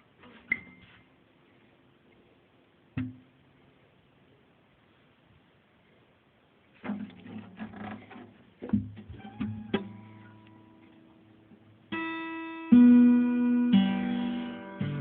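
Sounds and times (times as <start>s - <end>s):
acoustic guitar notes: 6.8s - 15.0s
guitar chord ringing: 9.2s - 15.0s.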